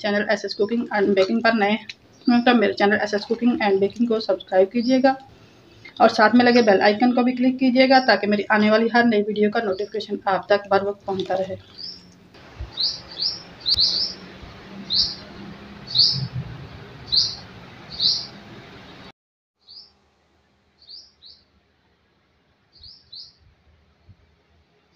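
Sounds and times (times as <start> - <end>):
steady background noise: 0.0 - 19.1
small bird chirping: 11.3 - 16.3, 17.0 - 18.4, 19.6 - 19.9, 20.8 - 21.5, 22.7 - 23.4.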